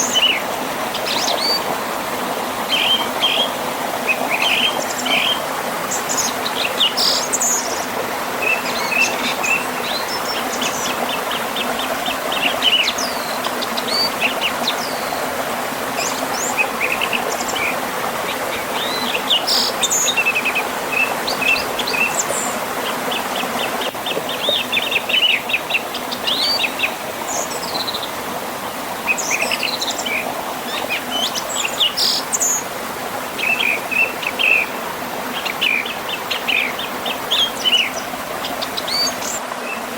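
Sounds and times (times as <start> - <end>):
songbirds singing: 0.0 - 1.8, 2.6 - 28.3, 29.0 - 32.7, 33.3 - 39.9.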